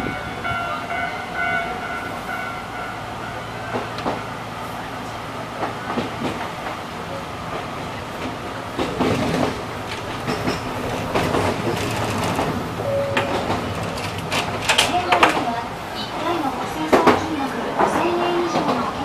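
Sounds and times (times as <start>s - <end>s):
electric train running noise: 0.0s - 19.0s
wheels clicking over track: 7.5s - 19.0s.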